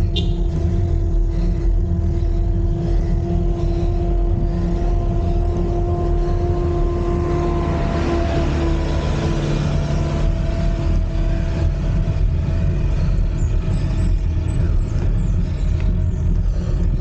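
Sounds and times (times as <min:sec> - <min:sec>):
droning hum: 0:00.0 - 0:17.0
wind rumbling on microphone: 0:00.0 - 0:17.0.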